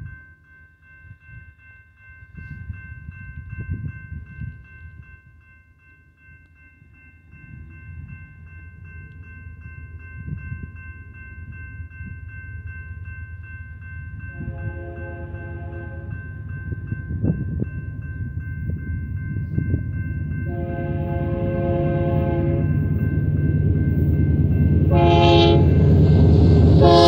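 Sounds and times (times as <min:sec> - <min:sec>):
freight train rumble: 0:06.2 - 0:27.0
locomotive air horn: 0:14.4 - 0:16.1, 0:20.5 - 0:22.7, 0:24.9 - 0:25.8, 0:26.7 - 0:27.0.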